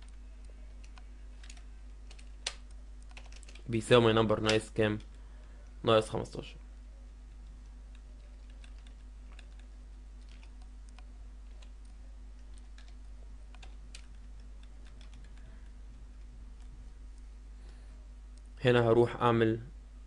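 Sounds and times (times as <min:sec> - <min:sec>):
computer keyboard typing: 0:00.0 - 0:03.7, 0:07.3 - 0:15.5
steady low hum: 0:00.0 - 0:20.0.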